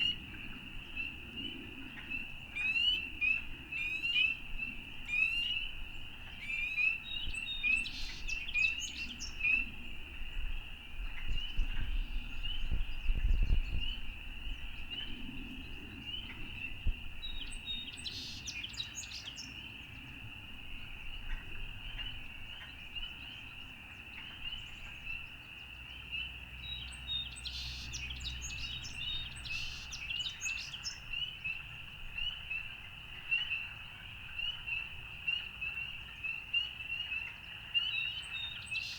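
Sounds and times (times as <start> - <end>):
birds singing: 0.0 - 38.9
frogs calling: 19.6 - 38.9.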